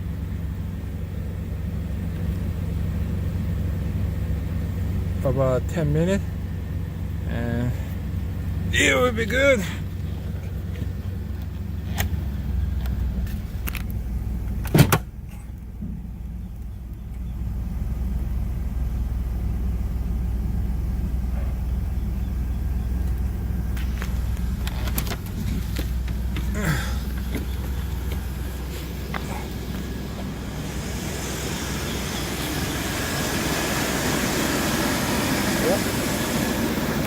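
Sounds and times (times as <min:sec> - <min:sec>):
van engine idling: 0:00.0 - 0:37.0
loud thump: 0:14.7 - 0:15.1.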